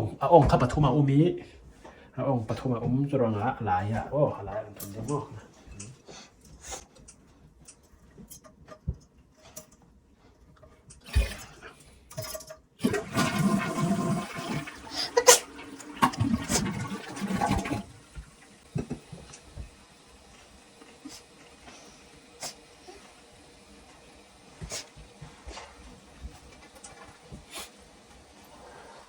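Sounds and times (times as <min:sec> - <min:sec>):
toilet flushing water: 0:11.0 - 0:29.0.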